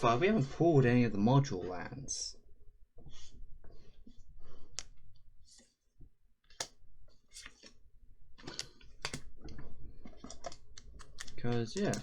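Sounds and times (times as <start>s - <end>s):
trading cards clicking: 8.5s - 9.3s, 10.5s - 12.0s
cards rustling: 10.3s - 12.0s.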